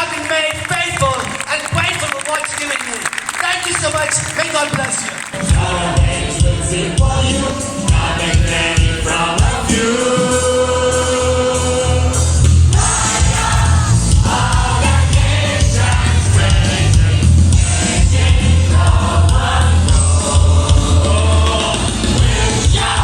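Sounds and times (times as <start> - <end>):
band playing gospel music: 0.0 - 23.0
choir singing: 5.4 - 23.0
heavy bass line: 5.5 - 23.0.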